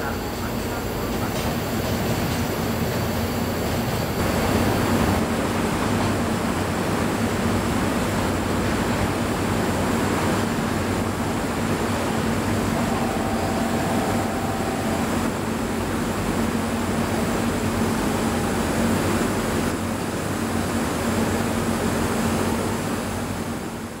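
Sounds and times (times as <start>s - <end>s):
train wheels rumbling on rails: 0.0s - 23.8s
faint high double tone: 12.4s - 16.4s.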